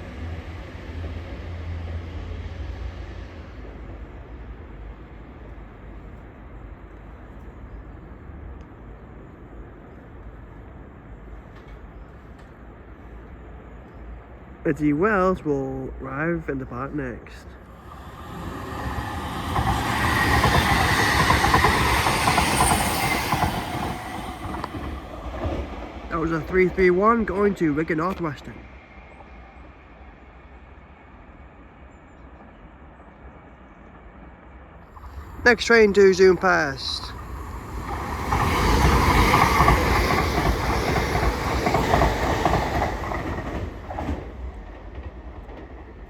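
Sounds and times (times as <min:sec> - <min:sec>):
electric train rumbling: 0:00.0 - 0:31.6, 0:32.3 - 0:46.0
train wheels clattering: 0:17.8 - 0:26.4, 0:35.0 - 0:45.9.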